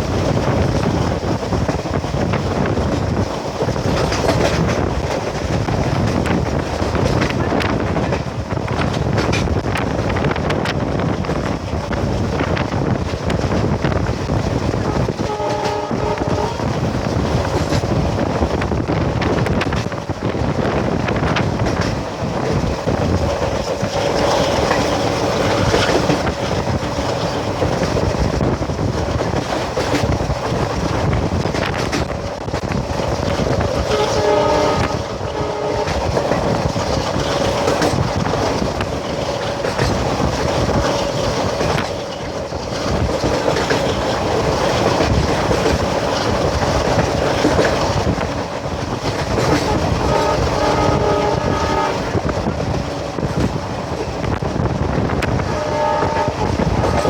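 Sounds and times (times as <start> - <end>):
diesel locomotive engine running: 0.0 - 57.0
wheels clattering over rail joints: 0.0 - 57.0
train horn: 14.7 - 17.0, 33.8 - 36.6, 49.4 - 52.5, 55.2 - 57.0.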